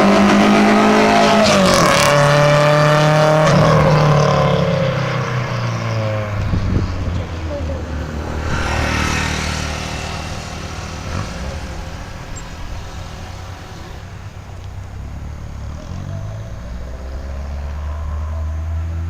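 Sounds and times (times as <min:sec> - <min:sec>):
car engine running: 0:06.2 - 0:17.9.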